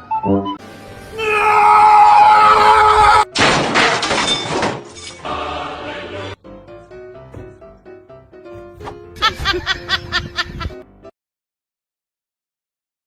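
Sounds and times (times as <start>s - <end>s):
background music: 0.0s - 11.1s
loud crashing shattering noise: 3.4s - 5.2s.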